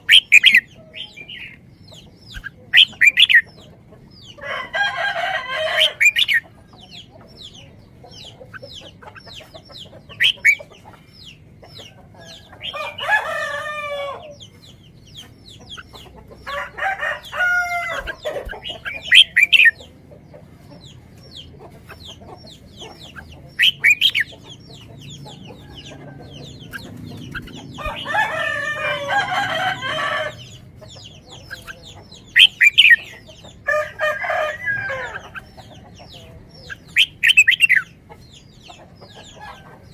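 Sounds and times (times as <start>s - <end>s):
chickens calling: 0.0s - 39.9s.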